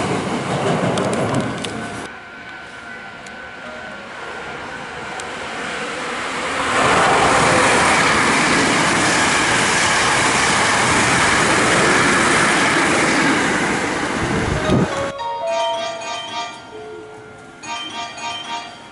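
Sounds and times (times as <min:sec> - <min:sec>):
electric train passing: 0:00.0 - 0:18.9.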